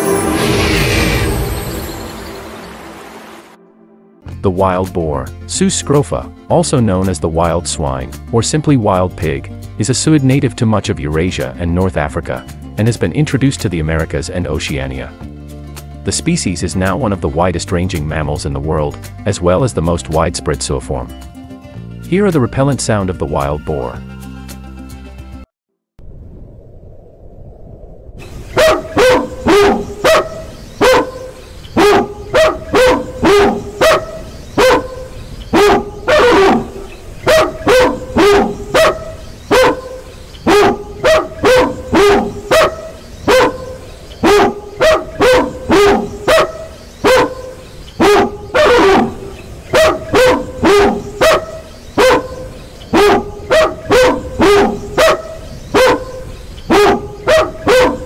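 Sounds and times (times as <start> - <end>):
dog barking: 28.5 - 58.0.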